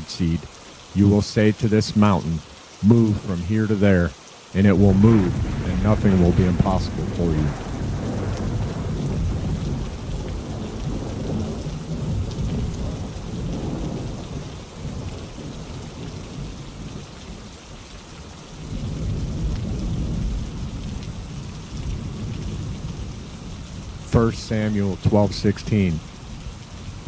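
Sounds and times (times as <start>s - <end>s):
steady rainfall: 0.0s - 27.0s
low rolling thunder: 4.7s - 17.4s, 18.6s - 25.1s.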